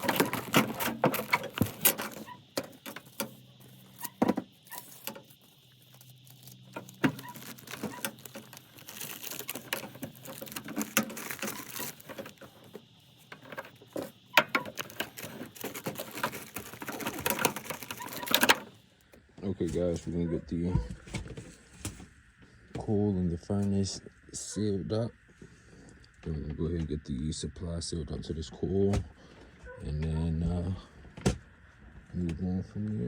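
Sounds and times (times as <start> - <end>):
rustling: 0.0 - 18.8.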